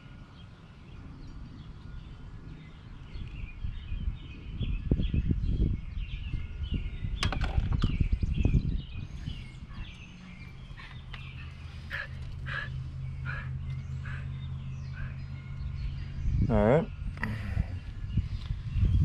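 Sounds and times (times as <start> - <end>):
birds chirping: 0.0 - 19.0
steady low hum: 8.0 - 19.0.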